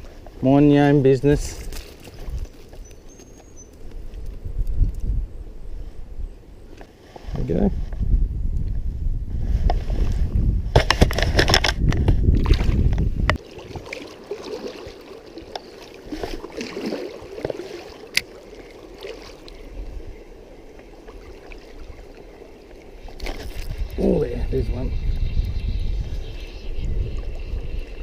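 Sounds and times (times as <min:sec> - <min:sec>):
water sloshing and splashing: 0:01.5 - 0:03.5, 0:10.8 - 0:24.0
running stream water: 0:12.3 - 0:28.0.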